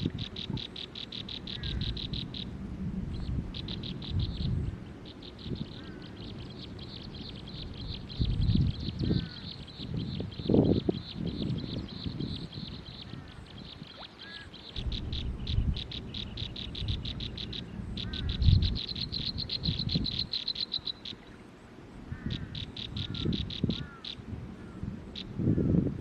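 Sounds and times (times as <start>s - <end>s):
low rumbles: 14.8s - 20.1s.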